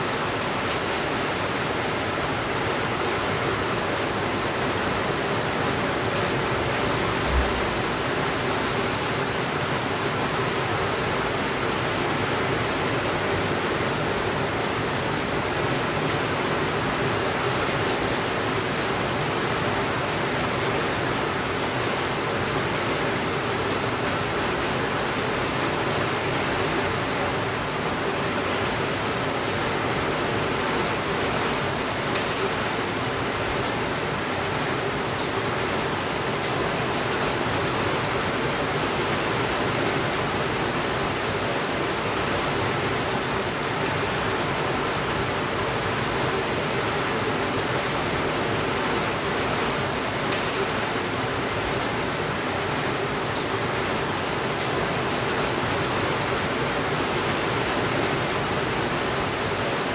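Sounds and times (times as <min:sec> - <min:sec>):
steady rainfall: 0:00.0 - 0:59.9
low thump: 0:07.2 - 0:08.0.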